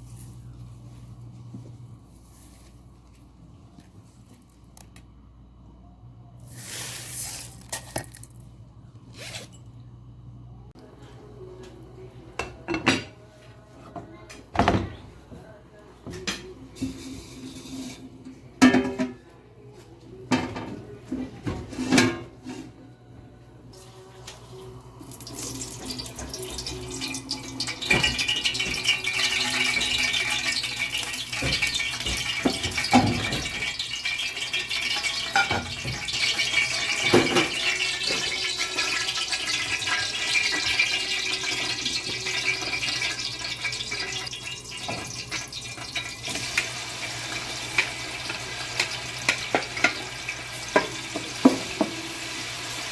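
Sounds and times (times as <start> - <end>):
food sizzling in pot: 25.0 - 52.9.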